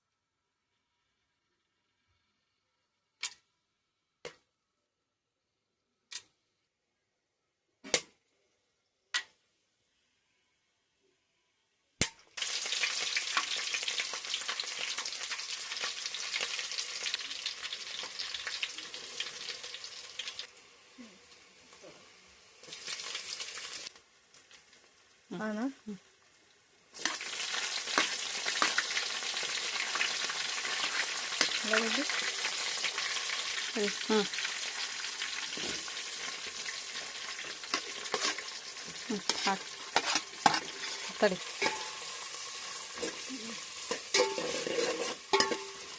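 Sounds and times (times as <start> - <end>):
food sizzling in hot oil: 12.1 - 45.9.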